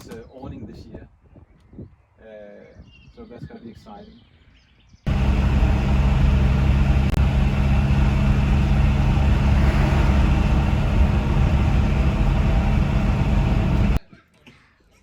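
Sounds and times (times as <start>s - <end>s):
exhaust blowing from broken pipe: 5.1s - 14.0s
van engine running loud: 5.1s - 14.0s.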